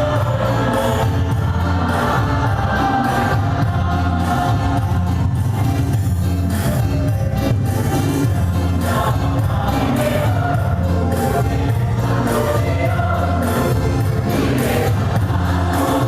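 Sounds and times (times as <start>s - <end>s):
choir singing: 0.0s - 7.1s, 7.7s - 16.0s
musical accompaniment with bass: 0.0s - 16.0s.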